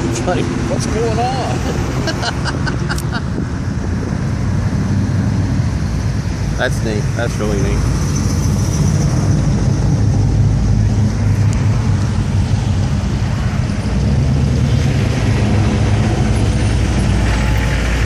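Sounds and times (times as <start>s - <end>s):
car engines running low: 0.0s - 18.0s.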